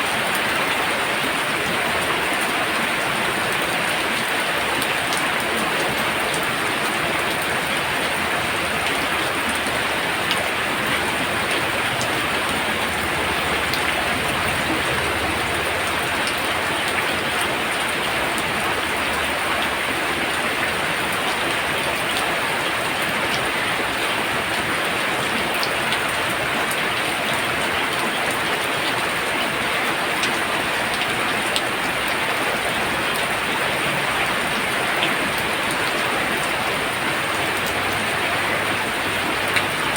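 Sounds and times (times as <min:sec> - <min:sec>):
heavy rain pouring: 0:00.0 - 0:39.9
raindrops ticking on a surface: 0:00.0 - 0:39.9.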